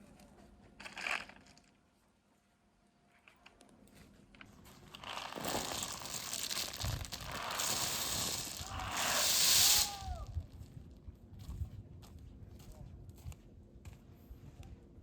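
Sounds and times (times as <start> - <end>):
crinkling rustling: 4.6 - 10.2.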